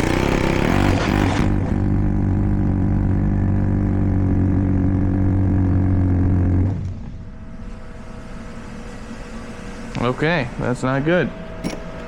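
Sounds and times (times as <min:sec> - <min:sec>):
pneumatic air hammer hammering: 0:11.6 - 0:12.0.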